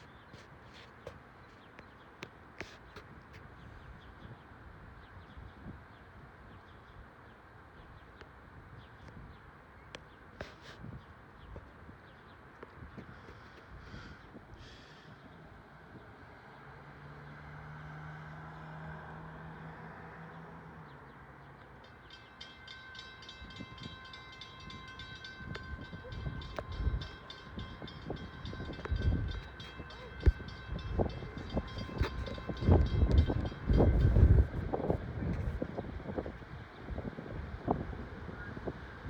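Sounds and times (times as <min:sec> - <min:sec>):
wind buffeting microphone: 0:23.2 - 0:39.0.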